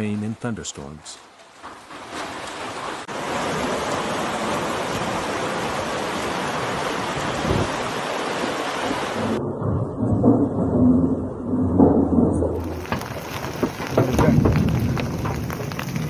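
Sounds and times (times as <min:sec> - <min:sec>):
heavy rain pouring: 0:01.6 - 0:09.4, 0:11.4 - 0:16.0
low storm rumble: 0:02.7 - 0:16.0.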